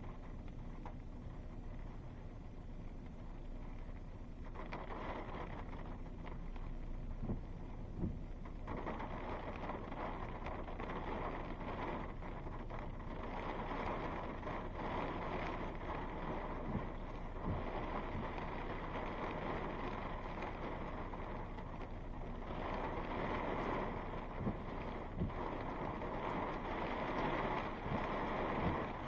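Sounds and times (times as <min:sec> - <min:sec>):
faint low thumps: 0:07.2 - 0:08.5, 0:16.6 - 0:18.4
rushing storm wind: 0:13.2 - 0:29.0.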